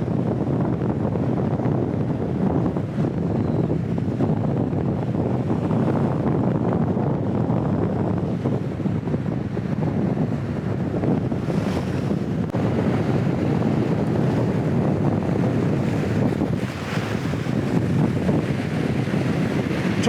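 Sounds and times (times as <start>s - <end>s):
wind buffeting microphone: 0.0s - 20.0s
waves washing at shore: 11.3s - 20.0s.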